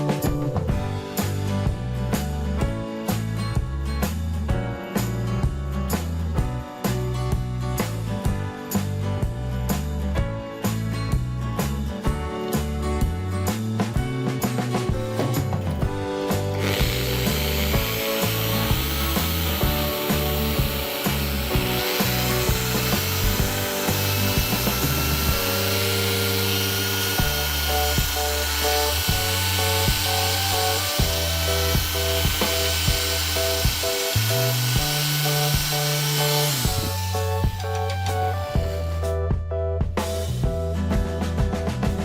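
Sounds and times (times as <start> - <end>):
background music with bass: 0.0 - 42.0
small motor whirring: 16.5 - 37.4, 38.3 - 39.0.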